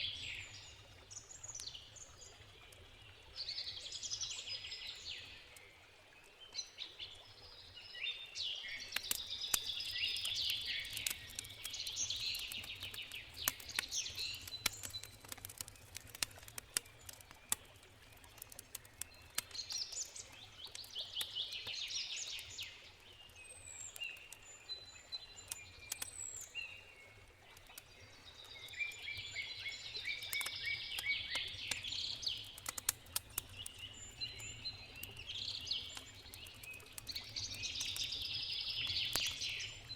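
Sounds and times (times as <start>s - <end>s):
songbirds singing: 0.0s - 39.9s
campfire crackling and popping: 8.8s - 39.9s.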